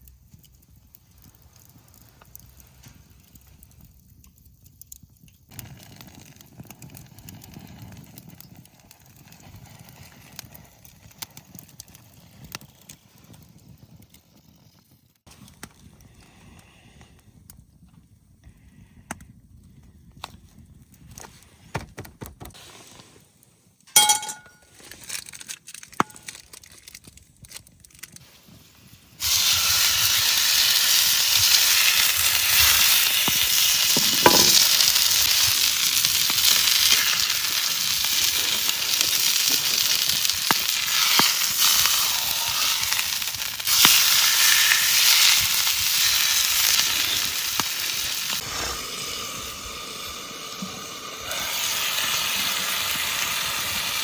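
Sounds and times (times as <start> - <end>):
food sizzling in a hot pan: 28.2 - 54.0.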